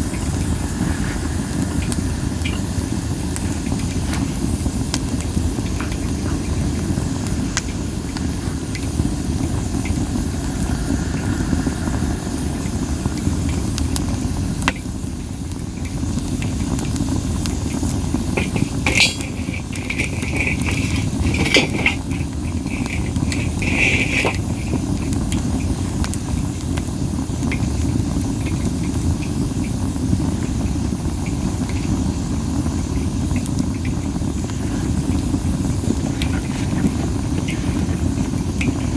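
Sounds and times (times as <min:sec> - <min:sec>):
low wind rumble: 0:00.0 - 0:25.5
high hissing whistle from fire: 0:00.0 - 0:28.7
campfire crackling and popping: 0:00.0 - 0:38.9.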